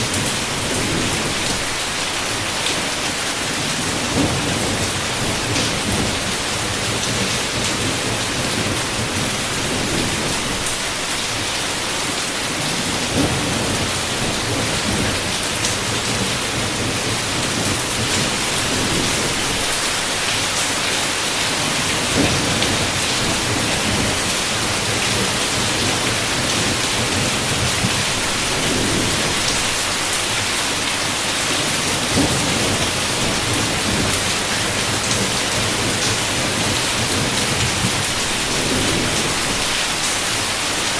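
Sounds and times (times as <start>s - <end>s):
heavy rain on a window: 0.0s - 40.9s
thunder rumbling: 3.4s - 11.5s, 12.6s - 20.4s, 21.5s - 29.9s, 32.0s - 40.4s.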